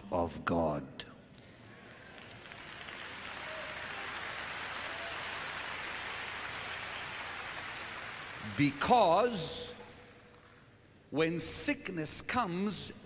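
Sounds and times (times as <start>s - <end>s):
audience applauding: 1.7s - 8.9s.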